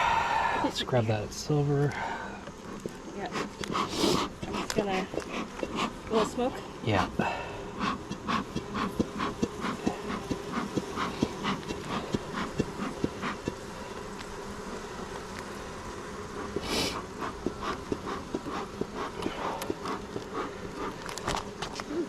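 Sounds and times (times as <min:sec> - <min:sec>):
honeybees humming: 0:00.0 - 0:22.0
short hiss: 0:16.6 - 0:17.0.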